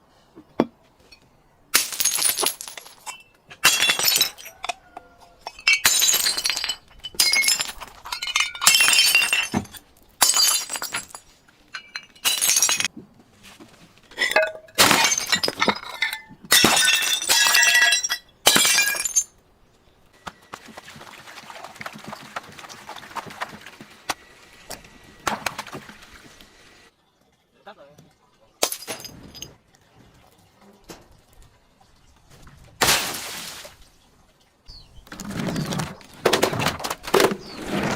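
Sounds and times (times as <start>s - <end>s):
glass bottles smashing: 1.7s - 4.8s, 5.4s - 12.9s, 14.1s - 19.4s, 28.6s - 29.6s, 32.8s - 33.7s.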